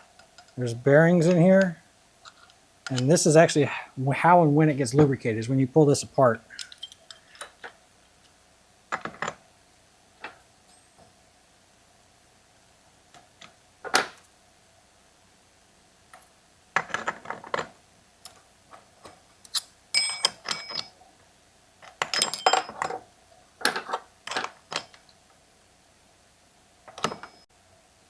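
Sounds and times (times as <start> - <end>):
small metal parts clinking: 6.5 - 8.4, 19.5 - 21.0, 21.8 - 23.0, 23.6 - 25.1.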